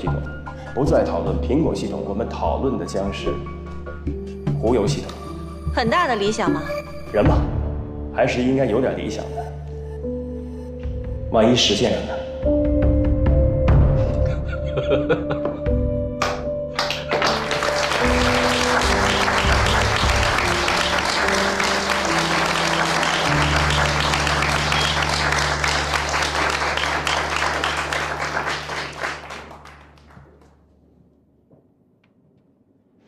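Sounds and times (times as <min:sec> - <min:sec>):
background music low notes: 0:00.0 - 0:32.3
audience applauding: 0:16.2 - 0:30.6.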